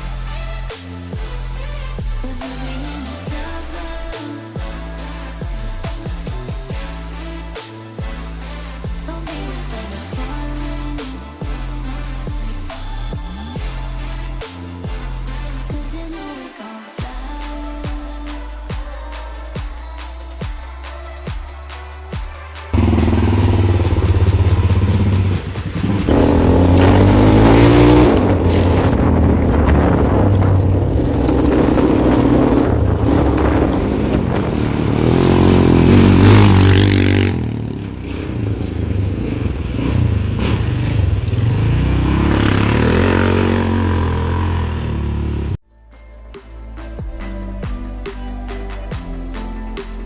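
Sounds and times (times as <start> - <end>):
vehicle engine revving: 20.0 - 45.6
vehicle clattering and scraping: 21.6 - 45.3.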